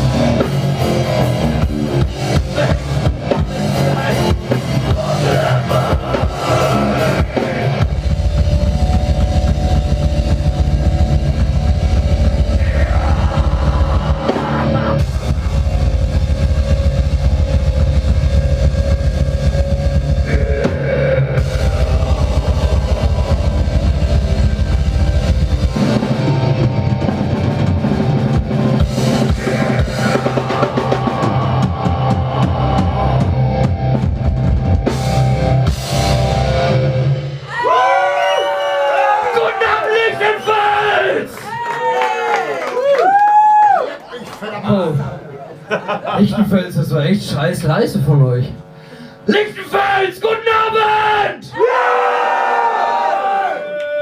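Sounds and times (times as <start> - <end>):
rapid bass drum: 0.0 - 36.9
metal band playing live: 0.0 - 38.2.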